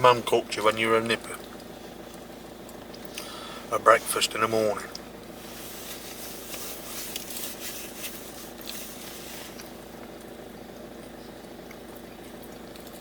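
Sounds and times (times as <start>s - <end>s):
low background hum: 0.0s - 13.0s
food wrappers rustling: 5.4s - 9.8s.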